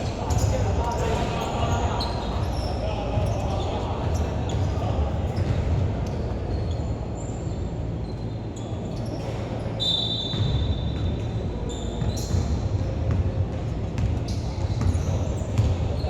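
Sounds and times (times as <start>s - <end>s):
indoor court din: 0.0s - 16.0s
sneakers squeaking on hardwood: 6.5s - 13.2s, 14.0s - 16.0s
basketball bouncing on floor: 12.0s - 15.9s.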